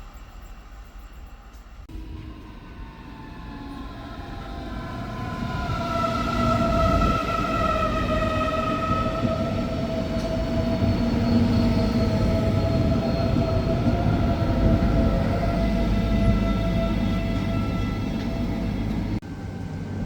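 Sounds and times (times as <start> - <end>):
train rumble: 0.0 - 20.0
train whine: 0.0 - 20.0.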